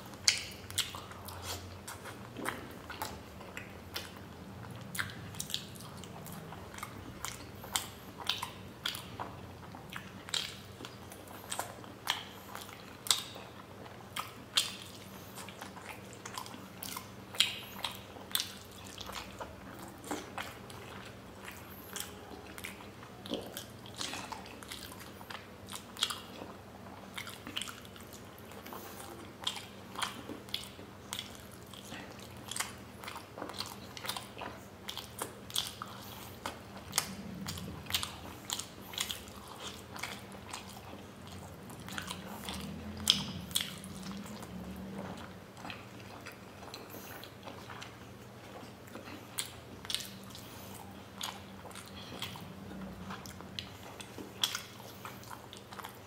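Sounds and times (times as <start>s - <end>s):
faint low hum: 0.0s - 56.0s
man chewing: 0.0s - 56.0s.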